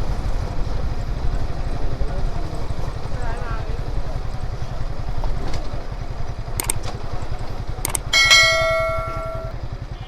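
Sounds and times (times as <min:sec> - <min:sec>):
motorcycle engine running: 0:00.0 - 0:10.0
light clicks: 0:06.6 - 0:08.1
small bell ringing: 0:07.9 - 0:09.6.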